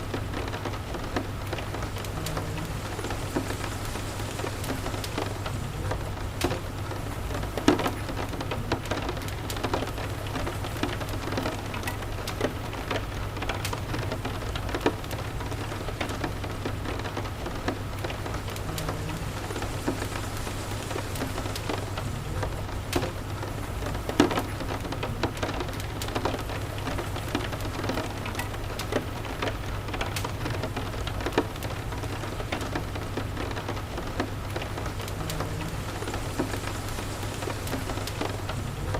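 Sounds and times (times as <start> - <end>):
low steady rumble: 0.0 - 8.9, 33.8 - 38.9
steady rain falling: 0.0 - 38.9.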